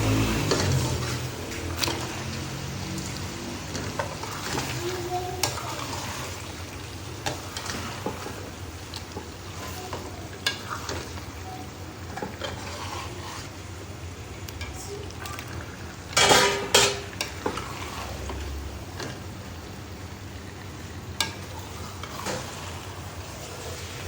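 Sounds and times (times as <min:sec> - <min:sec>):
metal spoon stirring and scraping: 0:00.0 - 0:06.5, 0:07.2 - 0:08.5, 0:09.5 - 0:11.4, 0:12.0 - 0:13.5, 0:16.1 - 0:19.2, 0:21.2 - 0:24.0
curry sizzling in oil: 0:00.0 - 0:24.0
spoon clanging on wok: 0:16.2 - 0:17.1.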